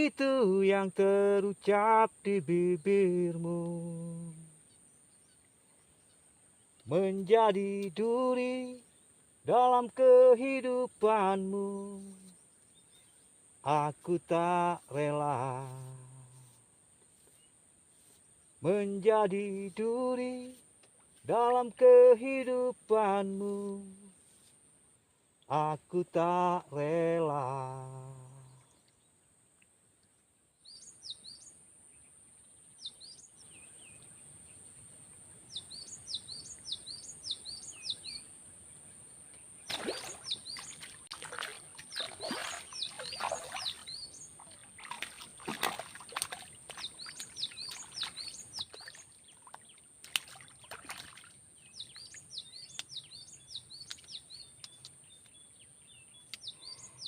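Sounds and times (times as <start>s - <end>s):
bird chirping: 30.6s - 49.8s, 51.5s - 57.0s.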